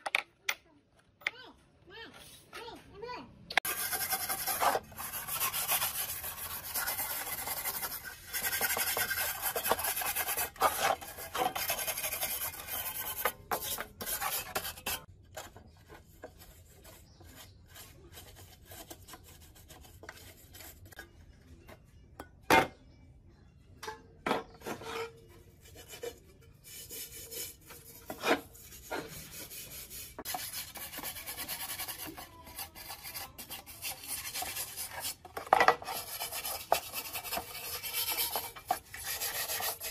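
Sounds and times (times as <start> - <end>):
scraper rasping on metal: 3.6 - 15.1, 24.8 - 39.9.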